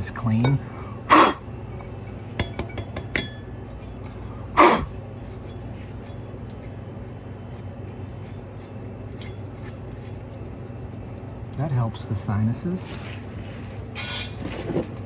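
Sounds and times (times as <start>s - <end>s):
steady low hum: 0.0s - 15.0s
metallic clinks on fan blade: 1.7s - 4.1s.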